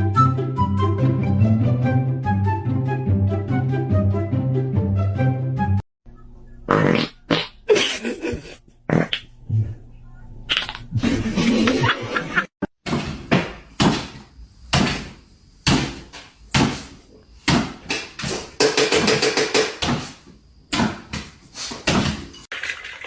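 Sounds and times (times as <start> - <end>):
sharp knocks: 12.8 - 22.4.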